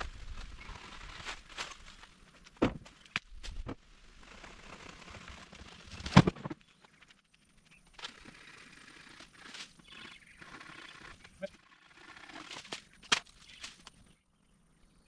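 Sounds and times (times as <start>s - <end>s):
branches snapping and crackling: 0.0s - 7.2s, 12.4s - 14.0s.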